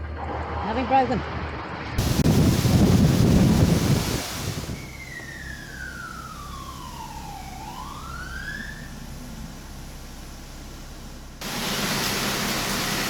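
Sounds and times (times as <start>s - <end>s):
wind noise on microphone: 1.9s - 5.0s
steady hiss: 2.0s - 6.5s
sliding whistling tone: 4.6s - 7.6s.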